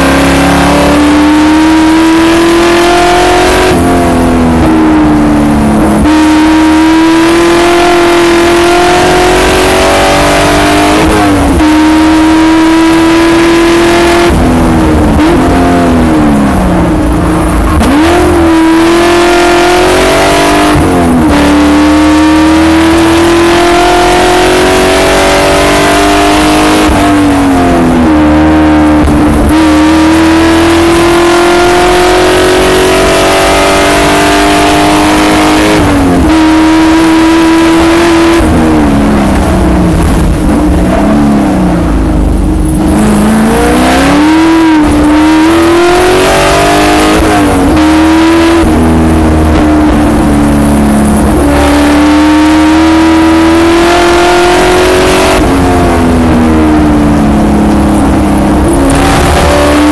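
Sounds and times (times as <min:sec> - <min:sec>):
race car engine accelerating: 0:00.0 - 0:59.9.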